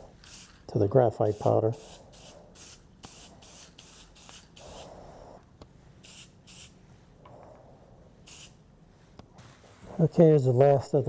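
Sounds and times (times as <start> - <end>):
aerosol spray can hissing: 0.2 - 0.6, 1.3 - 5.0, 6.0 - 6.8, 8.3 - 8.6.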